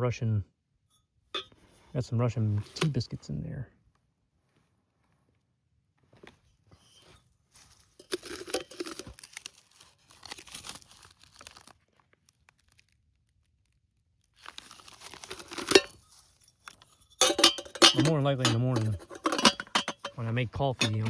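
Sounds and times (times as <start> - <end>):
rustling and crinkling in a pack: 6.0 - 21.0.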